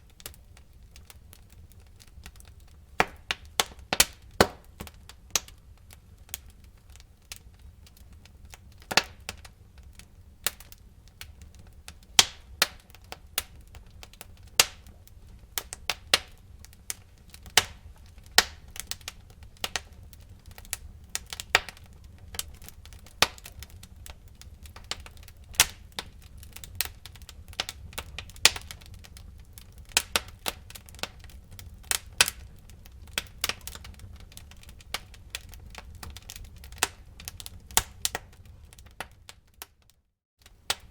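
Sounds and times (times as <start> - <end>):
low rumble of flames: 0.0 - 40.9
wood fire crackling: 0.0 - 40.9.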